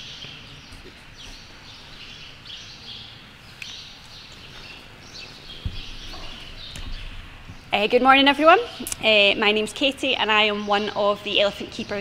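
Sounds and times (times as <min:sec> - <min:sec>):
low background hum: 0:00.0 - 0:12.0
small birds chirping: 0:00.0 - 0:12.0
soft low thud: 0:05.5 - 0:07.6.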